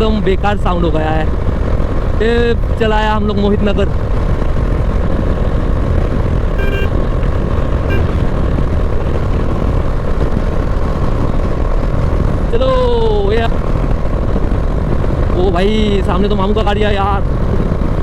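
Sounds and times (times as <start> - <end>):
wind buffeting microphone: 0.0 - 18.0
motorcycle engine running: 2.9 - 18.0
short beep: 6.6 - 7.0, 7.9 - 8.2.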